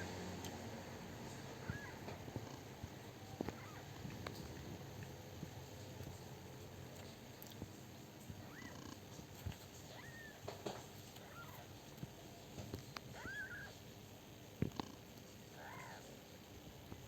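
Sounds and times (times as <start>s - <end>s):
kittens mewing: 1.5s - 4.4s, 8.2s - 12.2s, 12.9s - 13.8s, 15.5s - 16.2s.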